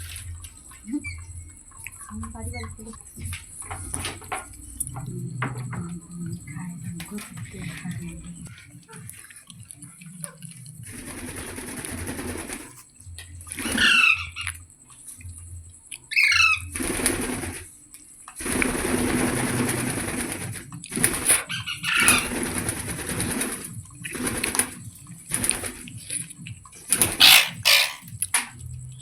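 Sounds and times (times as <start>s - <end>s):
wing flapping and rustling: 6.2s - 14.5s, 16.4s - 17.7s, 18.4s - 28.1s
parrot screeching: 13.6s - 14.5s, 16.1s - 16.7s, 21.3s - 22.4s, 27.2s - 28.1s.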